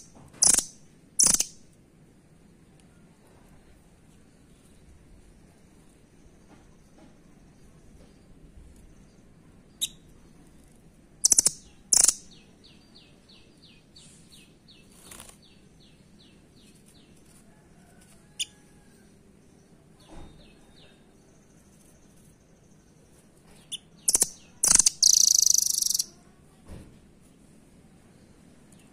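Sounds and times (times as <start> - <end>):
nuthatch calling: 0.0 - 1.6, 11.2 - 12.5, 23.7 - 26.1.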